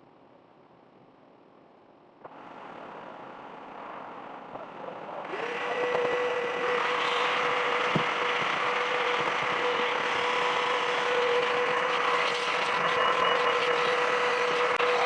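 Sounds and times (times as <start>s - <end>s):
electric motor whine: 5.2s - 15.0s.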